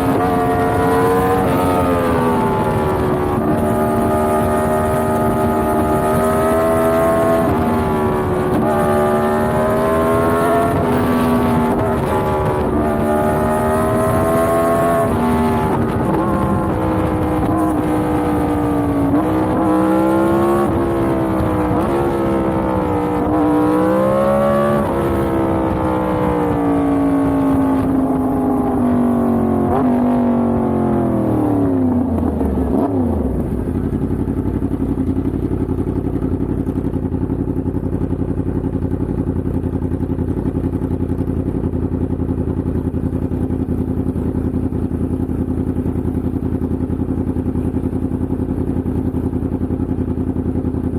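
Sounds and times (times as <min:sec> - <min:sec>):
motorcycle engine revving: 0:00.0 - 0:50.9
motorcycle engine idling: 0:32.0 - 0:50.9.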